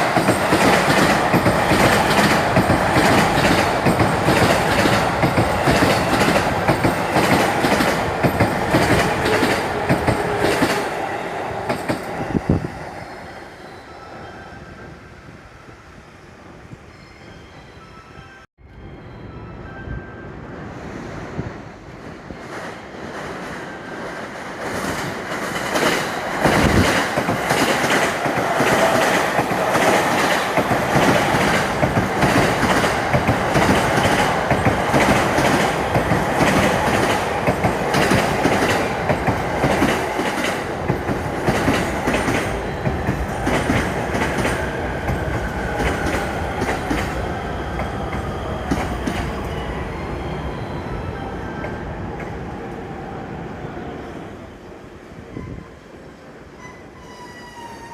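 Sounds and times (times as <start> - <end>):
train wheels clattering over rails: 0.0 - 10.9, 24.5 - 49.4.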